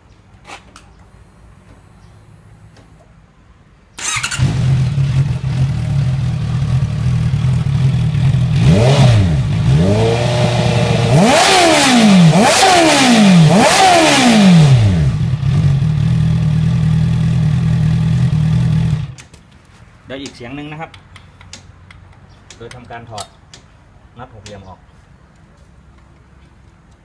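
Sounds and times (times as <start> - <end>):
motorcycle engine idling: 4.1 - 8.6, 14.9 - 19.2.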